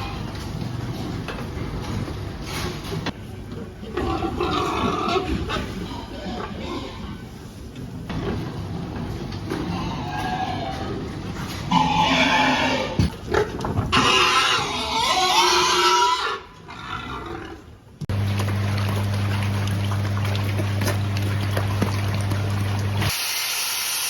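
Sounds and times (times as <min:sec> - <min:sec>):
pigs squealing: 0:03.9 - 0:07.3, 0:09.5 - 0:13.1, 0:13.9 - 0:17.6
low machine hum: 0:18.1 - 0:23.1.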